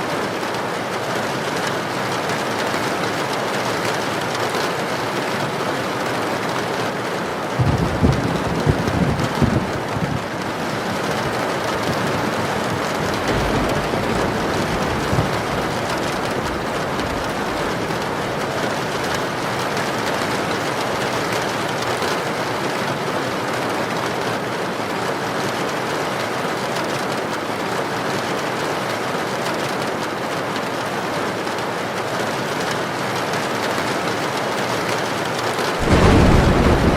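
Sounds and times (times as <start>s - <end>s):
heavy rain pouring: 0.0s - 36.9s
low rumble: 11.5s - 19.2s, 35.8s - 36.9s.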